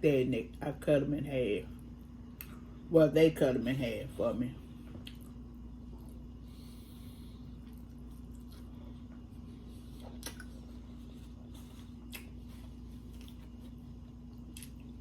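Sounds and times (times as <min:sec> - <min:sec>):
steady low hum: 0:00.0 - 0:15.0
person chewing: 0:05.0 - 0:15.0.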